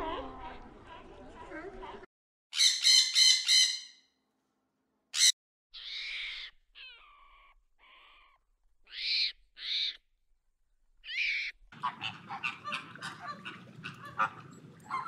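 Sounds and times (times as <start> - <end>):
harsh animal calls: 11.0 - 15.0.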